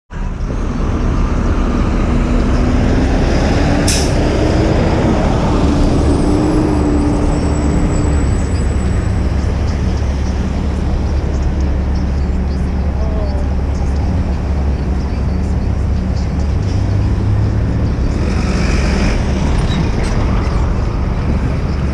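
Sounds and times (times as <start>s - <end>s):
street traffic rumble: 0.1s - 21.9s
vehicle engine droning: 0.1s - 21.9s.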